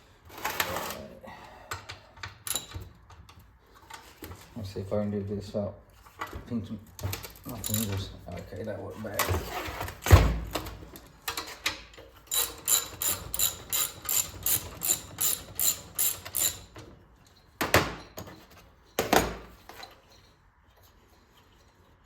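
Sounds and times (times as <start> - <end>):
ratchet wrench clicking: 7.6 - 7.9, 12.3 - 16.7.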